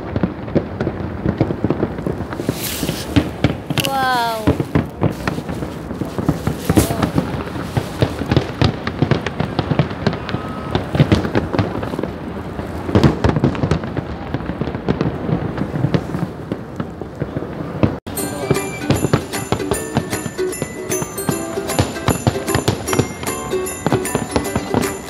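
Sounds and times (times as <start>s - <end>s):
fireworks bangs and crackling pops: 0.0s - 25.0s.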